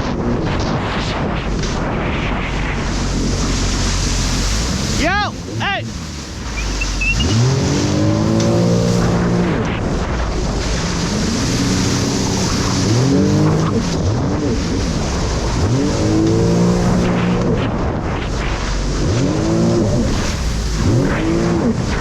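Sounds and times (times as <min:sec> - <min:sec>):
jet ski engine revving: 0:00.0 - 0:22.0
rush of wind and water: 0:00.0 - 0:22.0.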